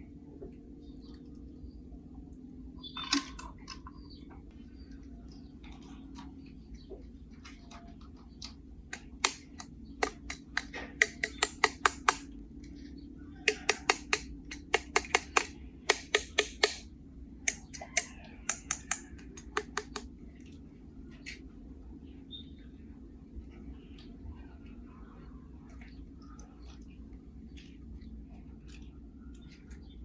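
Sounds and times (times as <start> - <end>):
low steady hum: 0.0 - 30.0
toy parts clicking: 8.9 - 12.3, 13.4 - 16.8, 17.5 - 20.0.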